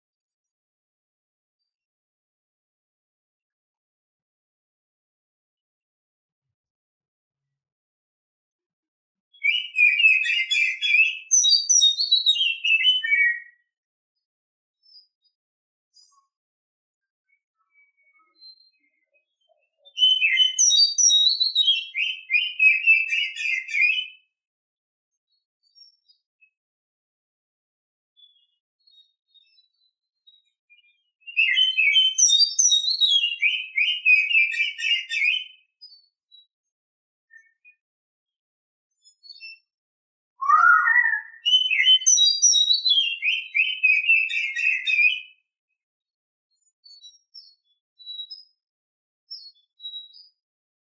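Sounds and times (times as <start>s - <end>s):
magpie-robin singing: 9.3s - 13.7s, 17.3s - 24.3s, 28.2s - 36.4s, 40.4s - 45.4s.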